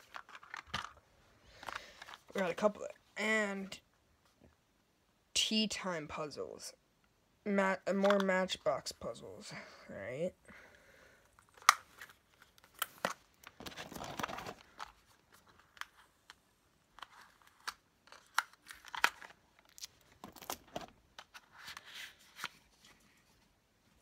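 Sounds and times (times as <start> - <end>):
packaging tearing and crinkling: 17.0 - 20.9.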